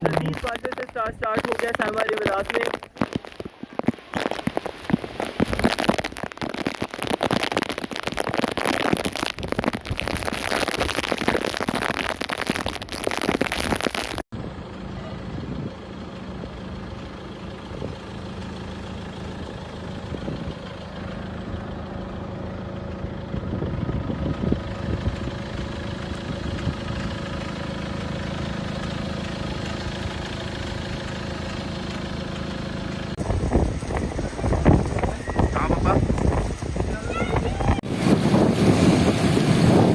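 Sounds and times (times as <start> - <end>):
vehicle engine humming: 0.0 - 12.9, 14.4 - 39.9
heavy rain pouring: 0.0 - 14.2.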